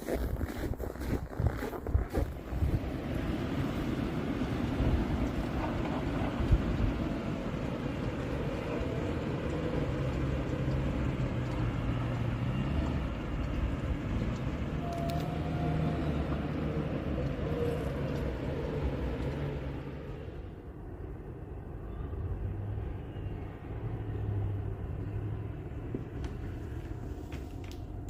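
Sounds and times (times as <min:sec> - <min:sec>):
vehicle engine running: 0:01.2 - 0:20.5.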